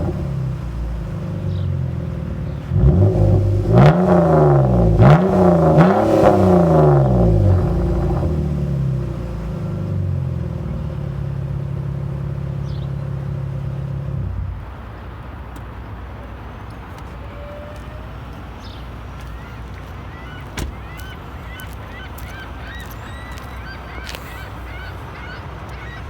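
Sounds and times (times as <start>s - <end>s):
car engine idling: 0.0s - 26.0s
short bird calls: 16.9s - 26.0s.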